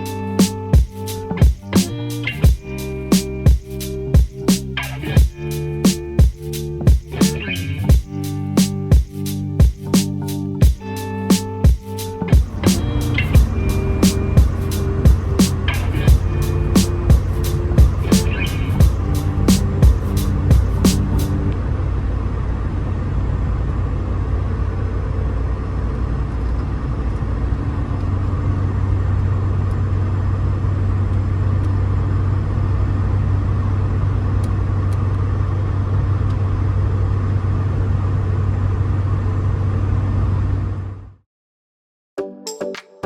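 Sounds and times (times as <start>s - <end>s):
car engine running: 12.3s - 41.2s.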